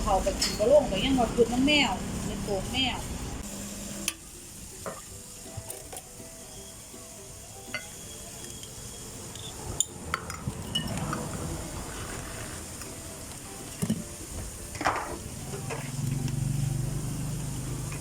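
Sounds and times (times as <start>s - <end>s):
steady hiss: 0.0s - 18.0s
utensils and cups clinking: 0.3s - 0.8s, 4.8s - 6.2s, 7.6s - 11.5s.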